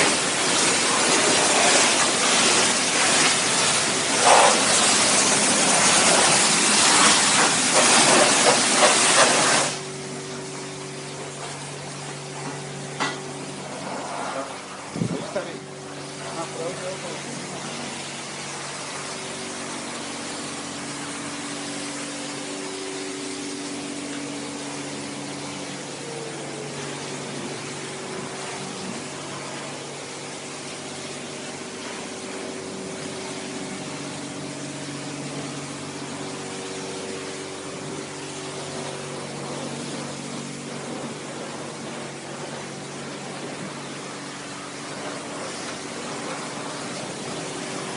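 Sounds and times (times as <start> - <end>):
high-pressure water spray hiss: 0.0 - 47.9
pump hum: 0.0 - 47.9.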